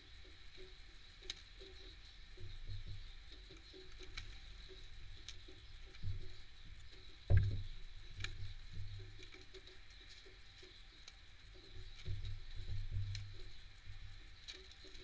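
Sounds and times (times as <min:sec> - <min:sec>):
birds pecking seeds on feeder: 0:00.0 - 0:15.0
heavy thump: 0:07.3 - 0:07.7.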